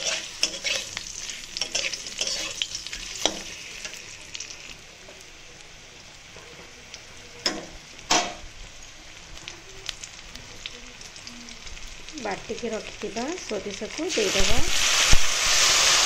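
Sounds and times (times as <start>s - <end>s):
utensil scraping pan: 0.0s - 4.0s
food sizzling in hot oil: 0.0s - 16.0s.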